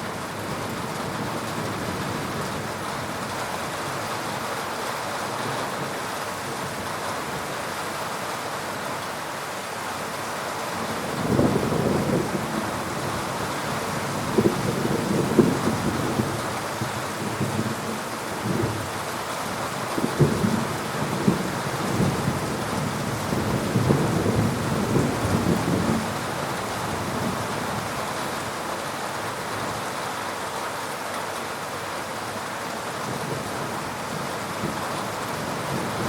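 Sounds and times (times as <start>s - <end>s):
heavy rain pouring: 0.0s - 36.0s.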